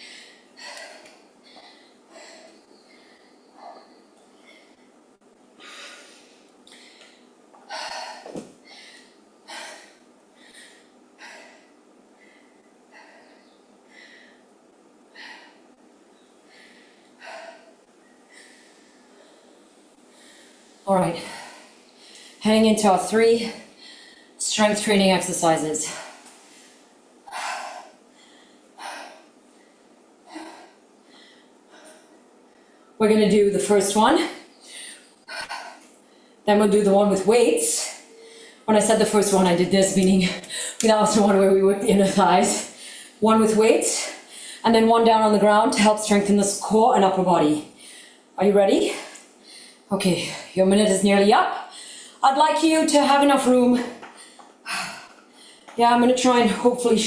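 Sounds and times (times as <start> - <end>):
person breathing hard: 0.0 - 4.9, 5.6 - 14.5, 16.4 - 22.4, 23.6 - 24.4, 25.9 - 32.9, 34.4 - 36.4, 42.6 - 43.2, 47.7 - 48.3, 48.9 - 50.5, 51.6 - 52.2, 54.1 - 55.8.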